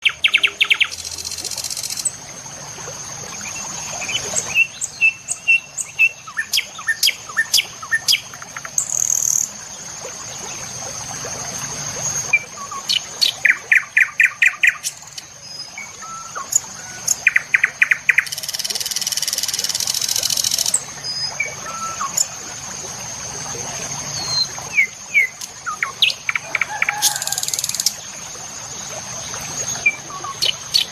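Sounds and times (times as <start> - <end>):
birds chirping and calling: 29.6 - 30.9.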